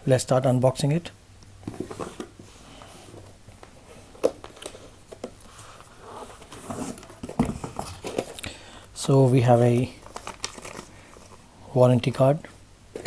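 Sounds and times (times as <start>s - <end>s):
packaging being handled: 9.2s - 11.5s.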